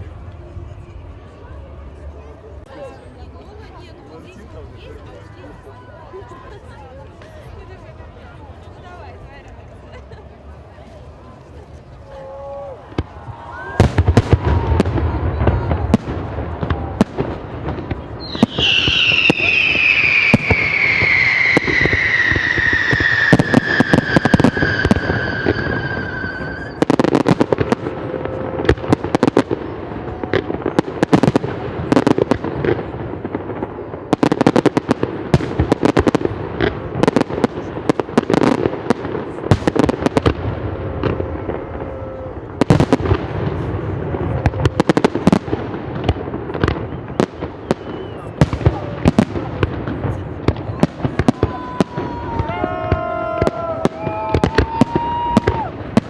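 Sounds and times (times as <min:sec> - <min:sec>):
fireworks crackling: 0:02.6 - 0:56.0
falling firework whistle: 0:18.2 - 0:28.9, 0:46.6 - 0:48.6, 0:51.5 - 0:55.8.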